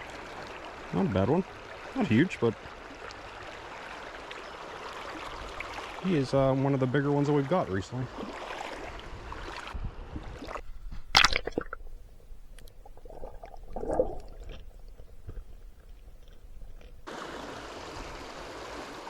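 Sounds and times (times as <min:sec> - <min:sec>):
creek water running: 0:10.4 - 0:18.9
handling and rubbing noises: 0:10.5 - 0:17.1.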